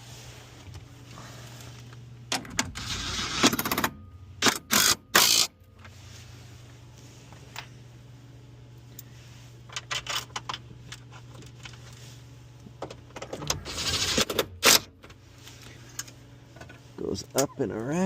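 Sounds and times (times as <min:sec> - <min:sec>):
steady low hum: 0:00.0 - 0:18.0
cordless drill driving bolt: 0:04.4 - 0:05.5.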